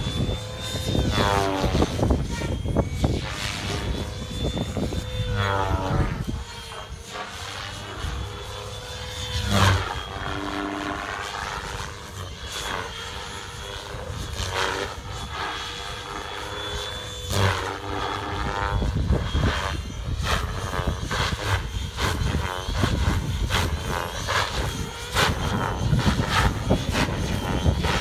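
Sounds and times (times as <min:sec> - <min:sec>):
wind buffeting microphone: 0:00.0 - 0:06.8, 0:17.2 - 0:28.0
rc helicopter rotor whine: 0:00.0 - 0:28.0.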